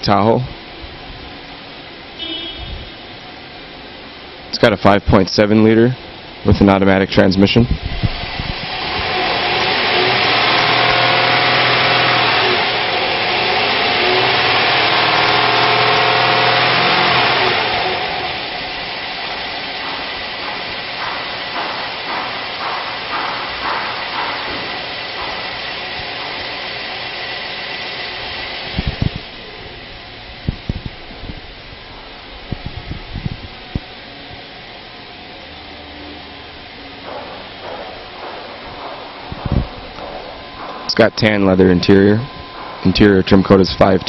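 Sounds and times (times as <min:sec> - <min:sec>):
car engine revving and idling: 0:08.2 - 0:30.6.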